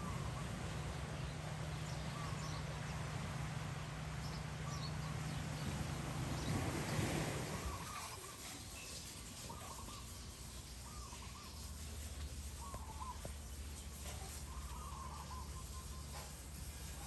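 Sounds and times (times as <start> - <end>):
bird calling: 7.5 - 17.0.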